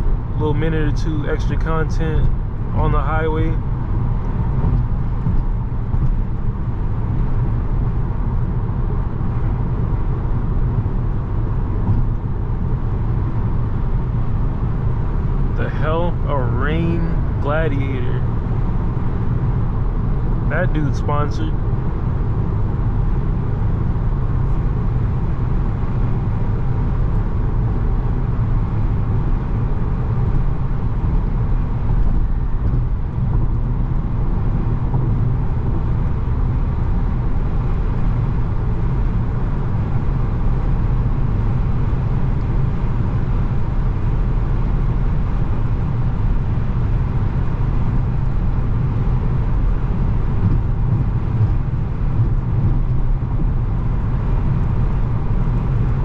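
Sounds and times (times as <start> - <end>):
car engine drone: 0.0 - 56.0
tyre and road noise: 0.0 - 56.0.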